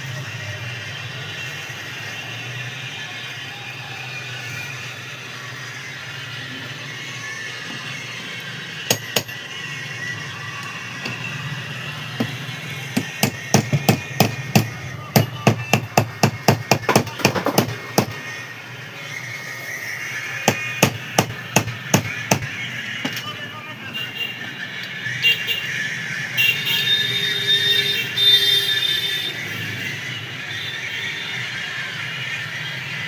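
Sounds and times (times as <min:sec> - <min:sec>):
hammer tapping on metal: 0:08.9 - 0:09.4, 0:13.0 - 0:18.2.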